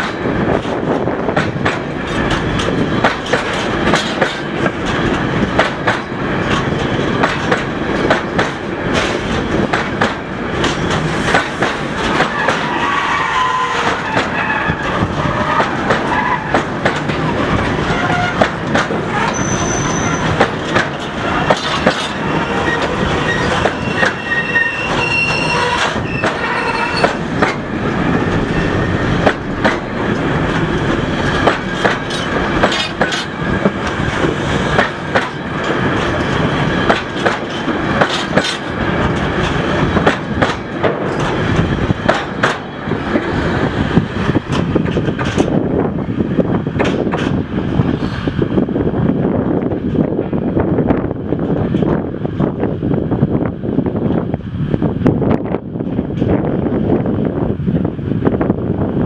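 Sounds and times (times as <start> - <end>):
train wheels clattering over rail joints: 0.0 - 59.0
high-pitched wheel squeals: 12.2 - 27.3.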